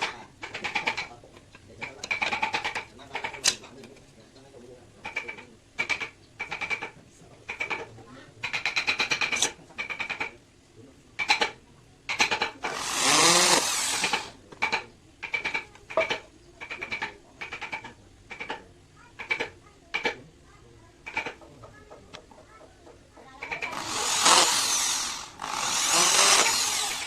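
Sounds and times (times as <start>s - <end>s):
electric drill drilling wood: 12.7s - 14.3s, 23.6s - 27.0s.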